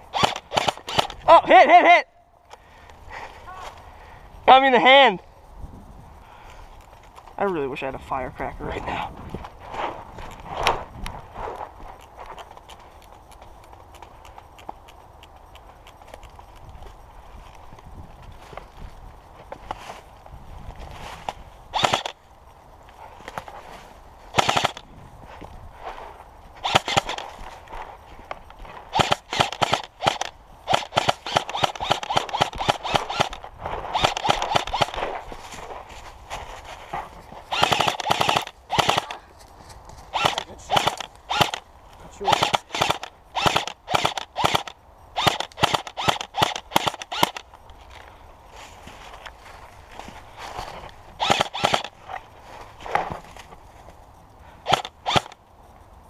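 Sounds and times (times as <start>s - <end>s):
airsoft gun firing bursts: 0.0s - 1.3s, 21.7s - 22.2s, 24.3s - 24.9s, 26.6s - 27.4s, 28.9s - 35.2s, 37.5s - 39.2s, 40.1s - 47.5s, 51.2s - 52.0s, 54.6s - 55.4s.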